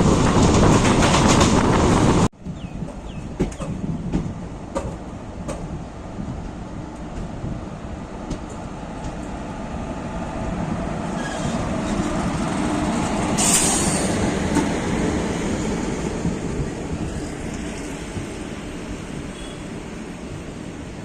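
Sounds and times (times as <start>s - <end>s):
passenger train rumbling on rails: 0.0s - 21.0s.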